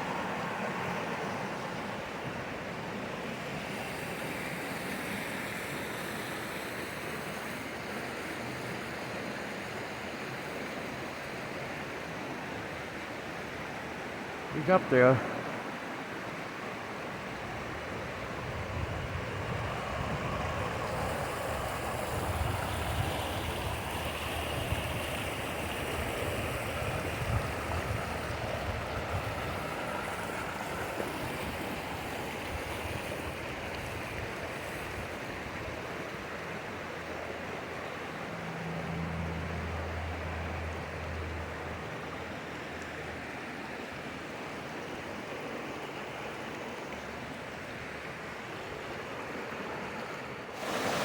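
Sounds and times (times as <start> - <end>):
stream flowing over rocks: 0.0 - 51.0
low engine hum: 35.6 - 44.2.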